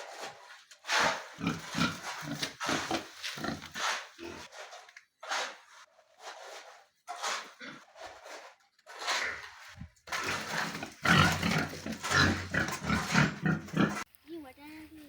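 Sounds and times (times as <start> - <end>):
pigs grunting and squealing: 0.9 - 4.6, 7.1 - 8.2, 8.9 - 14.1.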